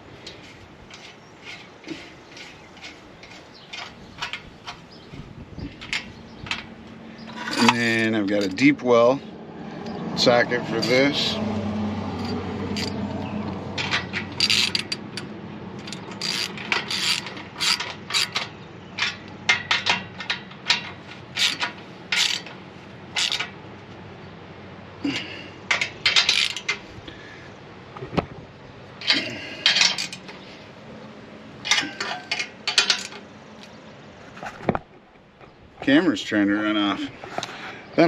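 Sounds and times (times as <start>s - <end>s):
hand ratchet clicking: 13.8s - 22.6s, 23.2s - 23.6s, 25.7s - 26.8s.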